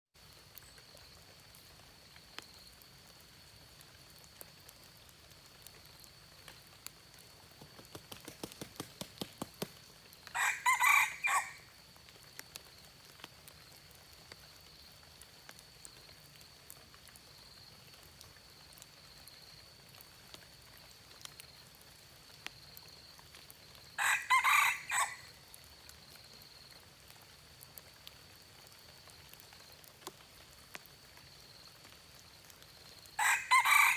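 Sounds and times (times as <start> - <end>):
rooster crowing: 10.3 - 11.7, 24.0 - 25.3, 33.2 - 33.9.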